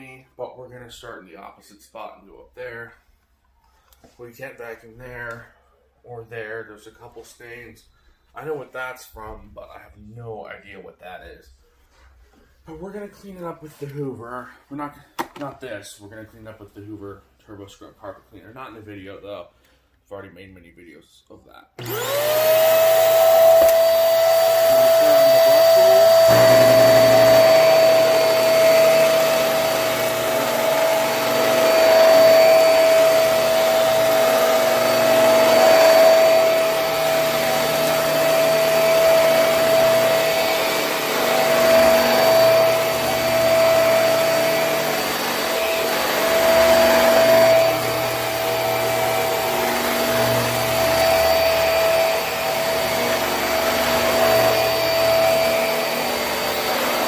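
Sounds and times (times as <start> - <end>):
vacuum cleaner motor whine: 21.8 - 57.0.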